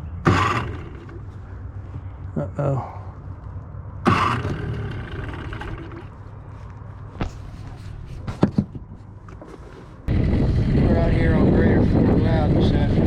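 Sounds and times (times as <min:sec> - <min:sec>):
outboard engine turning over: 0:00.0 - 0:01.6, 0:04.0 - 0:06.4.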